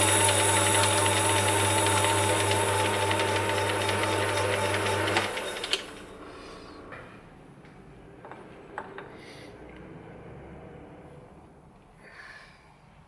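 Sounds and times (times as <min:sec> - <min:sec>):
lathe humming and whining: 0:00.0 - 0:07.0.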